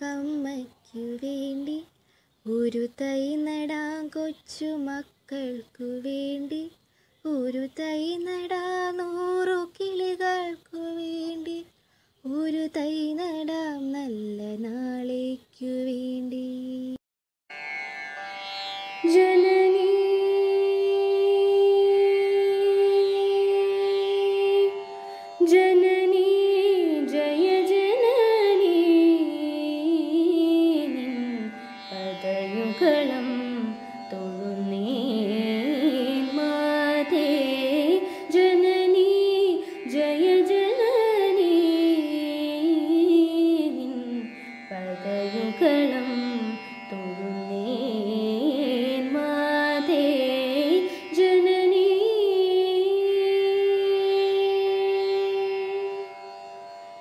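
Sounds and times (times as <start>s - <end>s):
woman singing wordless melody: 0.0s - 17.0s, 19.0s - 56.4s.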